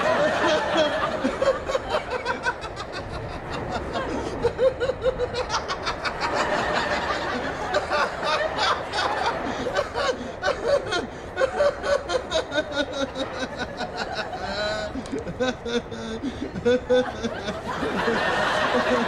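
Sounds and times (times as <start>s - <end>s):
audience laughter: 0.0s - 19.0s.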